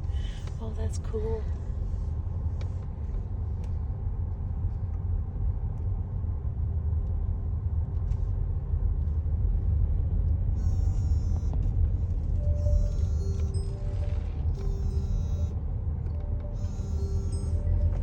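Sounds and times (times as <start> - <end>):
car engine and tyres rumbling: 0.0 - 18.0
car radio tones: 10.6 - 11.7, 12.4 - 18.0.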